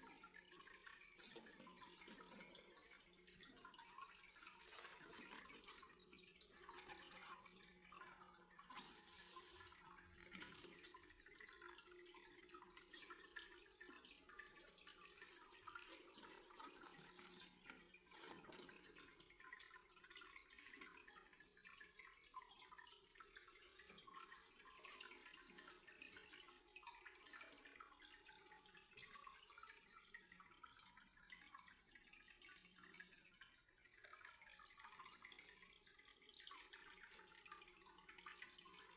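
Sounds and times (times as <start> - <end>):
faint water trickling and dripping: 0.0 - 38.9.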